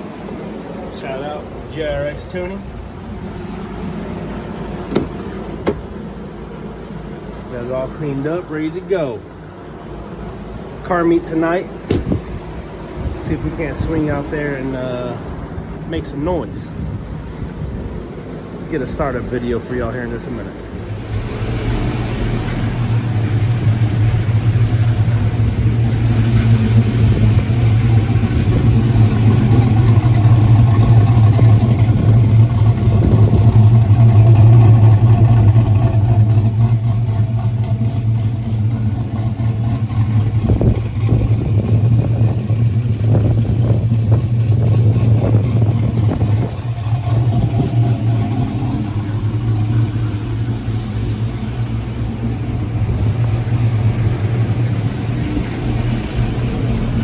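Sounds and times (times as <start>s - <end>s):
engine idling loudly: 17.8s - 57.0s.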